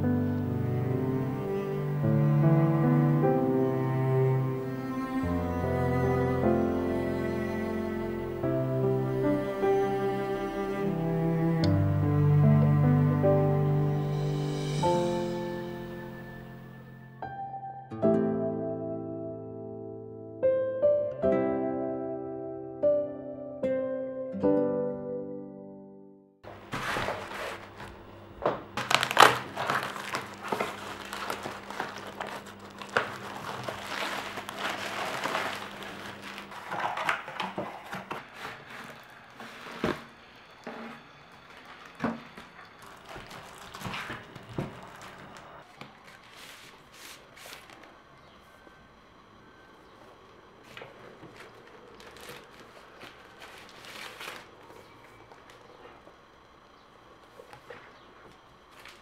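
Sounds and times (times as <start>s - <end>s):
packaging crinkling and rustling: 26.5s - 48.0s, 50.7s - 56.2s, 57.4s - 59.0s.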